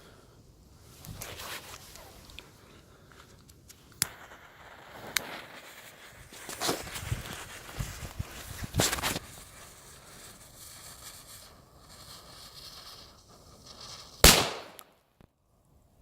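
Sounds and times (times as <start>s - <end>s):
faint steady hiss: 0.0s - 16.0s
firecracker bang: 4.0s - 13.1s, 13.9s - 14.8s.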